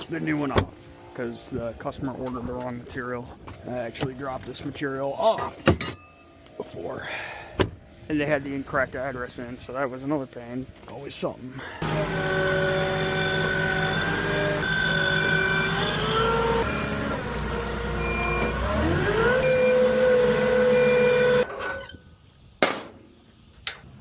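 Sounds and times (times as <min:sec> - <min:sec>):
truck engine revving: 0:11.8 - 0:21.5.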